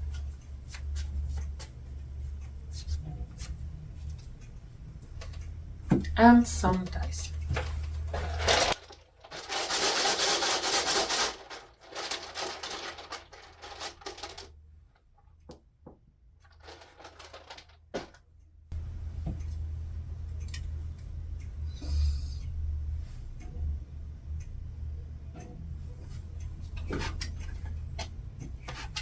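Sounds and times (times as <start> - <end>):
dice rattling and clattering: 8.2 - 14.5.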